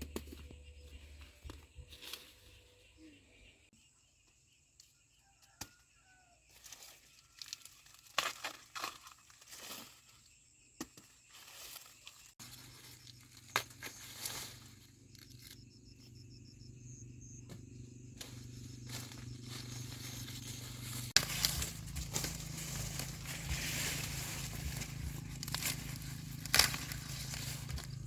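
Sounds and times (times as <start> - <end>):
dry corn leaves rustling: 0.5 - 3.0, 6.5 - 10.3, 11.2 - 15.6, 18.2 - 28.0
low hum: 12.5 - 28.0.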